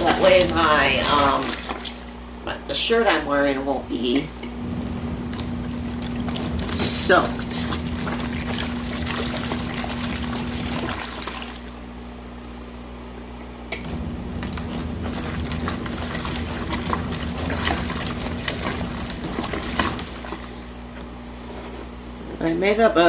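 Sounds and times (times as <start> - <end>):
water pouring into washing machine: 0.0 - 2.2, 5.2 - 11.9, 13.9 - 20.7
washing machine motor hum: 0.0 - 23.0.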